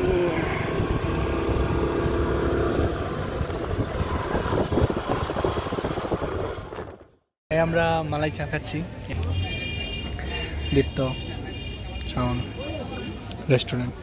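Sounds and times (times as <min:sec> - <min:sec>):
vehicle engine: 0:00.0 - 0:07.3
wind rumble: 0:00.0 - 0:07.3.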